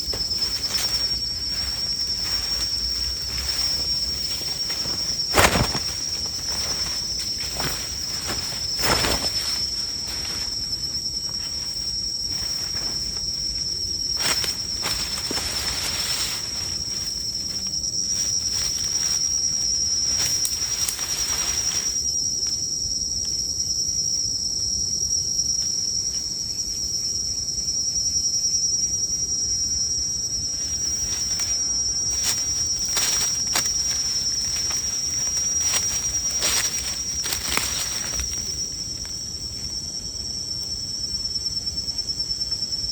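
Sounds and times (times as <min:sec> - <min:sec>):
rustling and clicking: 0:00.0 - 0:10.5, 0:30.7 - 0:38.6
insects trilling: 0:00.0 - 0:42.9.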